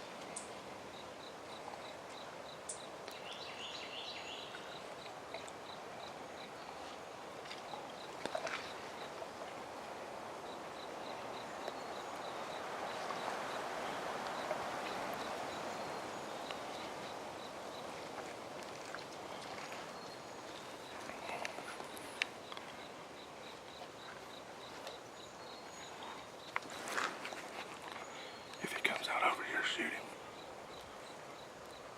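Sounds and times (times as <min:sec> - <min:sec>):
insect chirping: 0:10.4 - 0:18.0, 0:19.7 - 0:31.9.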